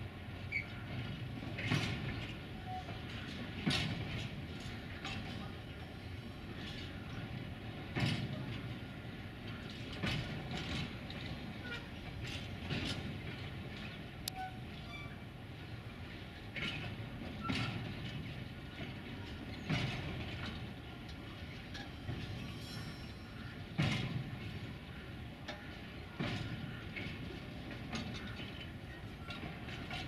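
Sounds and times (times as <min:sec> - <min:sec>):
freight wagons rolling: 0:00.0 - 0:30.0
wheels knocking over rail joints: 0:00.7 - 0:05.7, 0:16.4 - 0:30.0.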